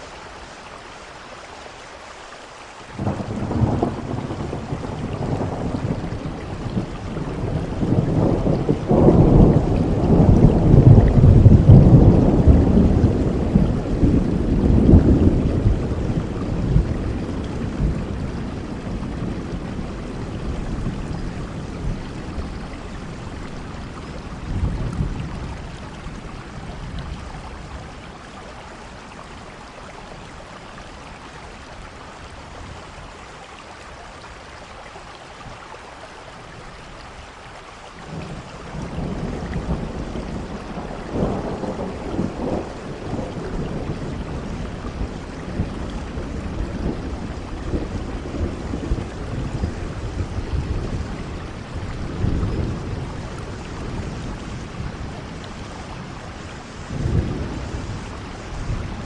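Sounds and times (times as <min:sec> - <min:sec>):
steady rain falling: 0:00.0 - 0:59.0
rolling thunder: 0:03.0 - 0:27.8, 0:38.1 - 0:59.0.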